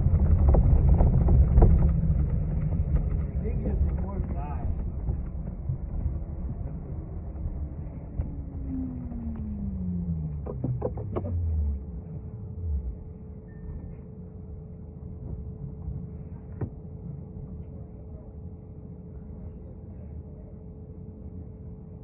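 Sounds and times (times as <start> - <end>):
bus drivetrain whine: 0.0 - 22.0
bus low rumble: 0.0 - 22.0
thin steady hum: 0.0 - 22.0.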